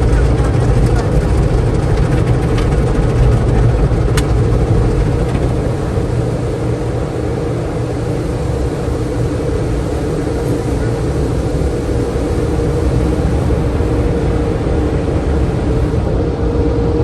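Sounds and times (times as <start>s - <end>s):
low mechanical rumble: 0.0s - 17.0s.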